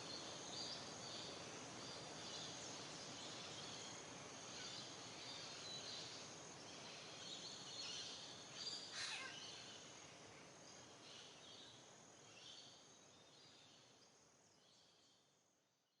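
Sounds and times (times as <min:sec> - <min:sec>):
steady soft hiss: 0:00.0 - 0:15.6
faint bird chirps: 0:07.3 - 0:10.4.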